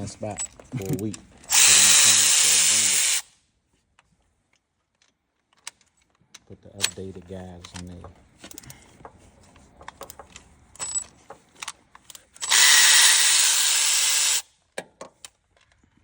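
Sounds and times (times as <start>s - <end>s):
handheld power tool running: 1.5s - 3.3s, 12.4s - 14.5s
tools clicking and tapping: 7.7s - 12.5s.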